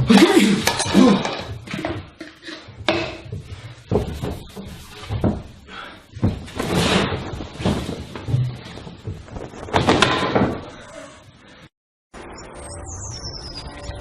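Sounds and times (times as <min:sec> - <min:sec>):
irregular thumps and bangs: 0:01.2 - 0:10.8.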